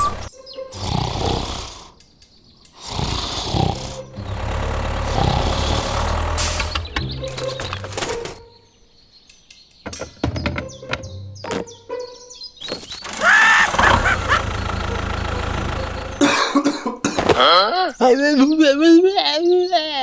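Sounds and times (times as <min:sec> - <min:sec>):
mechanical running drone: 0:00.0 - 0:00.3, 0:03.6 - 0:08.4, 0:12.6 - 0:16.3
music: 0:06.6 - 0:08.6, 0:09.9 - 0:13.3.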